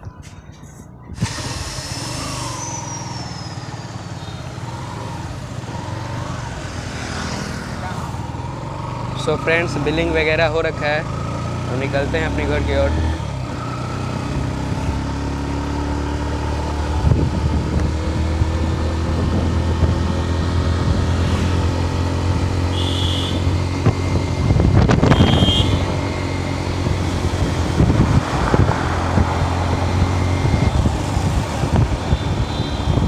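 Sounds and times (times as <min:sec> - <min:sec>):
wind noise on microphone: 0:00.0 - 0:02.8, 0:16.6 - 0:22.7, 0:23.3 - 0:33.0
motorcycle engine running: 0:04.0 - 0:33.0.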